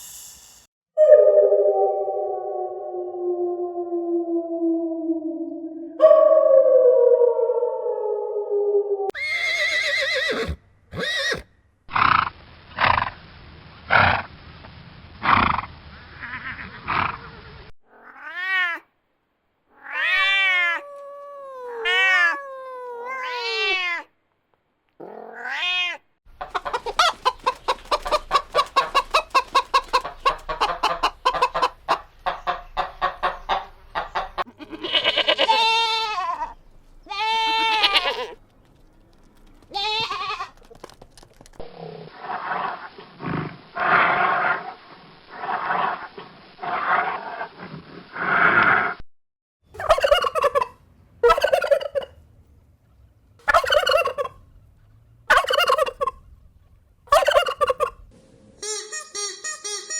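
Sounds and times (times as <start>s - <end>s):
farm animal calls: 26.4s - 38.4s, 49.8s - 52.2s, 53.4s - 54.4s, 55.3s - 56.2s, 57.1s - 58.0s
fast quavering bleat: 34.5s - 38.4s.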